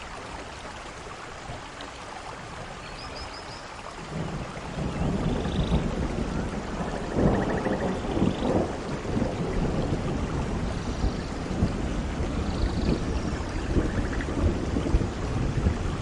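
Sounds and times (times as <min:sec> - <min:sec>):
heavy rain: 0:00.0 - 0:16.0
low rumbling thunder: 0:04.0 - 0:16.0.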